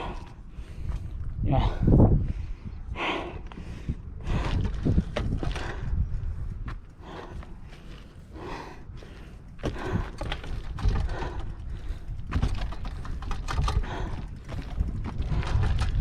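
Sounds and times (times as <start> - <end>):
mountain bike on rocky trail: 0.0 - 2.7, 3.4 - 16.0
wind rumbling on microphone: 0.0 - 16.0.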